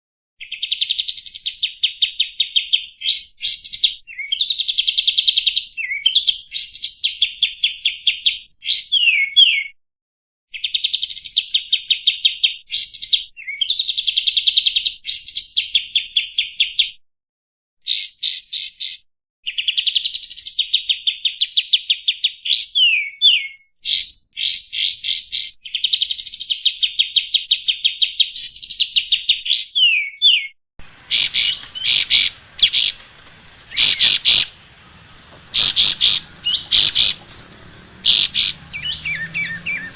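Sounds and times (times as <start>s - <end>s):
background hiss: 30.8s - 38.7s
bulbul singing rapid trills: 30.8s - 39.9s.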